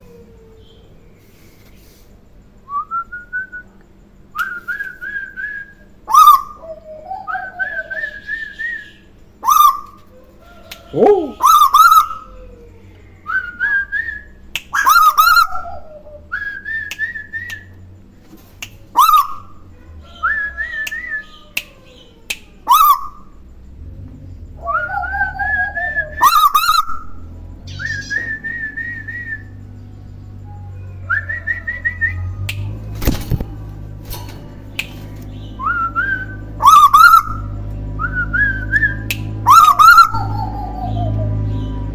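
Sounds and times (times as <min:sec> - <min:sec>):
bird whistled calls: 0:04.4 - 0:10.0, 0:10.7 - 0:12.4, 0:13.3 - 0:17.8, 0:18.9 - 0:19.6, 0:22.7 - 0:23.4, 0:24.6 - 0:29.6, 0:35.3 - 0:41.7.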